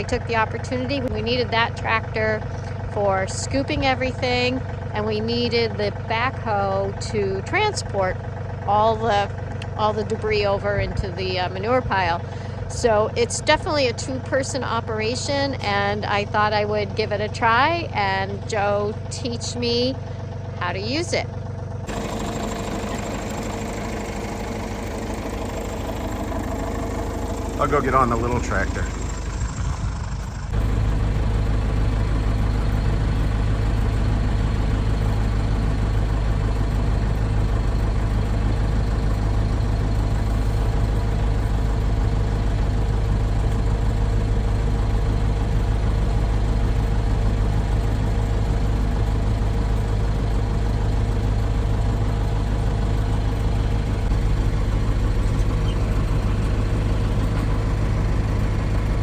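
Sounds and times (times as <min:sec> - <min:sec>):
heavy engine droning: 0:00.0 - 0:59.0
quieter engine sound: 0:00.0 - 0:59.0.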